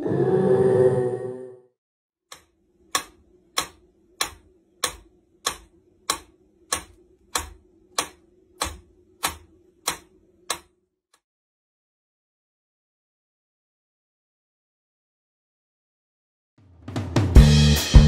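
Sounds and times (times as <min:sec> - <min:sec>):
metronome ticking: 0:02.3 - 0:10.7.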